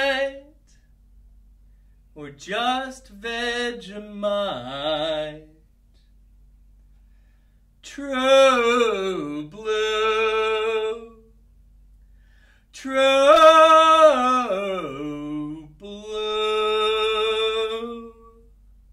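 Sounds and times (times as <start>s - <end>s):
man singing unaccompanied: 0.0s - 0.7s, 2.2s - 5.7s, 7.8s - 11.4s, 12.7s - 18.5s.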